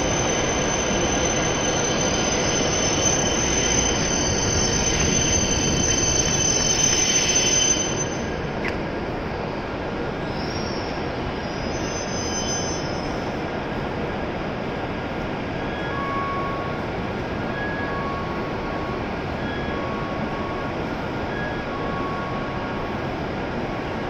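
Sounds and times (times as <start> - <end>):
train brakes squealing: 0.0 - 8.5, 10.2 - 13.4, 15.6 - 16.9, 17.5 - 22.7
standing train noise: 0.0 - 24.0.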